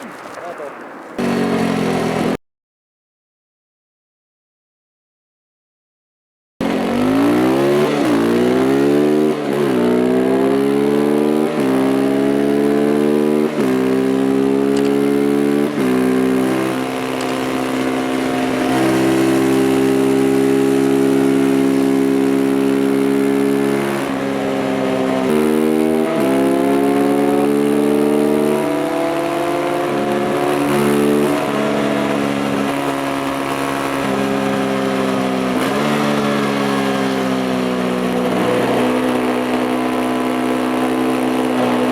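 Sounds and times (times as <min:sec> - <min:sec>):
motorcycle engine accelerating: 0:00.0 - 0:02.4, 0:06.6 - 0:41.9.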